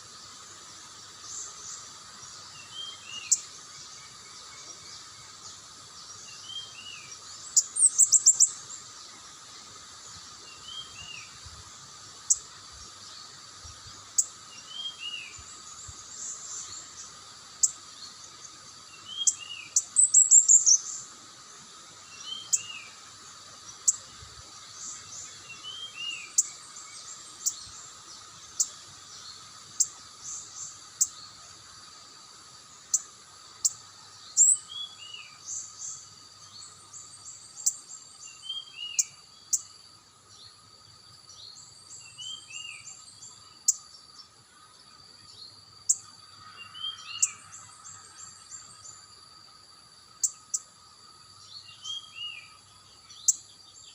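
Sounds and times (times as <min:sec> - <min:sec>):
insect drone: 0:00.0 - 0:53.9
small birds calling: 0:01.0 - 0:11.4, 0:12.1 - 0:21.1, 0:22.0 - 0:39.7.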